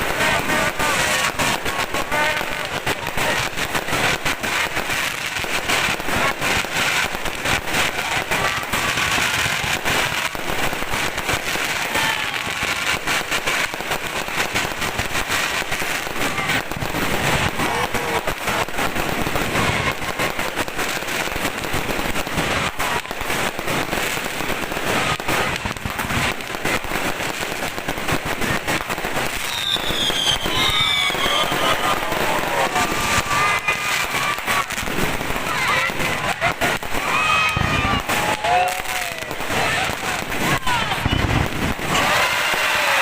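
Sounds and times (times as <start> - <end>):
fireworks banging and crackling: 0.0 - 43.0.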